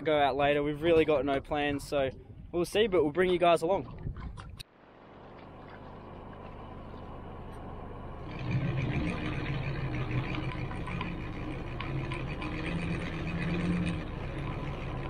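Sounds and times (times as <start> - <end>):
vehicle engine running: 4.7 - 15.0.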